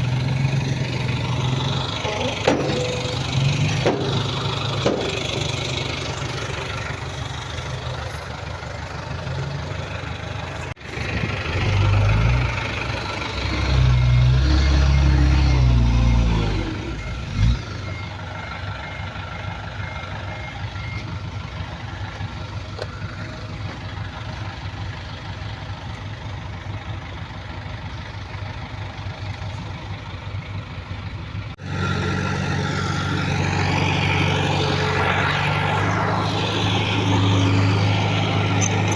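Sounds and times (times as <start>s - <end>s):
diesel engine running: 0.0s - 38.9s
reversing beep: 2.0s - 3.5s, 13.4s - 21.5s.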